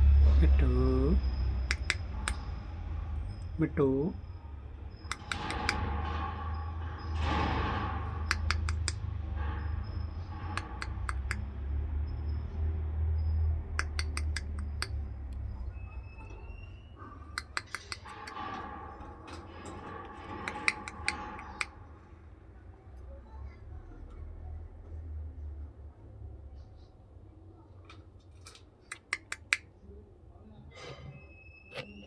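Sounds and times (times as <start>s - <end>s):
parrot clicking its beak: 1.7s - 2.5s, 5.1s - 5.8s, 8.3s - 9.0s, 10.5s - 11.4s, 13.8s - 15.4s, 17.3s - 18.5s, 20.3s - 21.8s, 28.9s - 29.7s
faint whistle: 14.1s - 17.9s.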